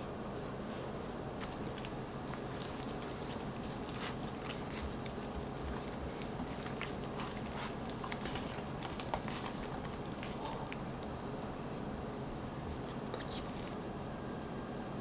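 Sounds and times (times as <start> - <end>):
person chewing food: 0.0 - 11.2
steady low hum: 0.0 - 15.0.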